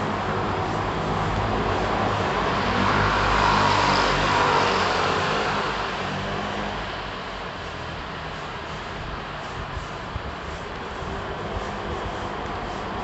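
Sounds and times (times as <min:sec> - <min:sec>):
urban traffic noise: 0:00.0 - 0:13.0.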